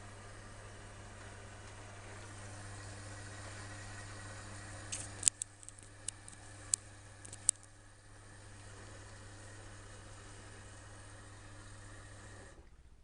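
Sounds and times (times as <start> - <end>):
washing machine hum and hiss: 0.0 - 13.0
sharp clicks and ticks: 4.9 - 7.7.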